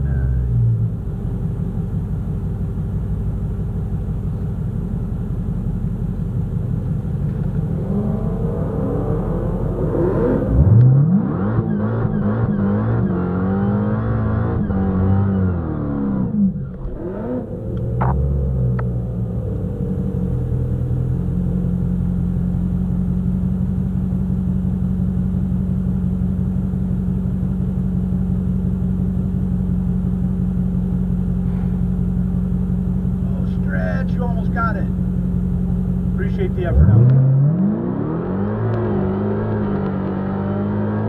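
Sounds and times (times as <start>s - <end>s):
car engine idling from inside: 0.0s - 11.0s, 16.3s - 37.4s.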